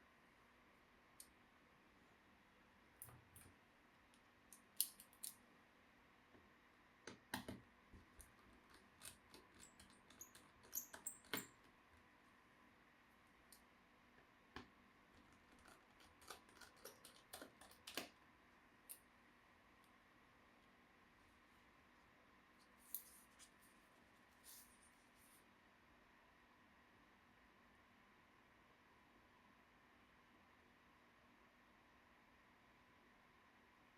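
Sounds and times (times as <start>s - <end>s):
small clicks of laptop parts: 4.5s - 5.4s, 14.6s - 18.2s.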